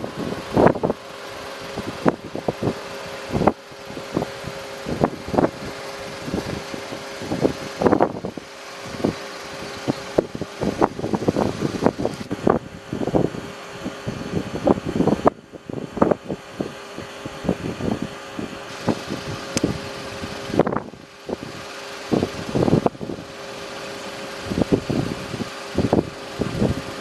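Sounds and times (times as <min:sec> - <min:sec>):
wind buffeting microphone: 0:00.0 - 0:27.0
steady hiss: 0:18.7 - 0:27.0.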